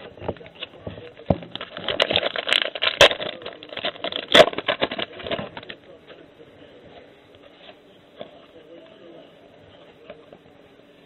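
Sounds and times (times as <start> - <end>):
foil wrapper crackling: 0.0 - 5.8.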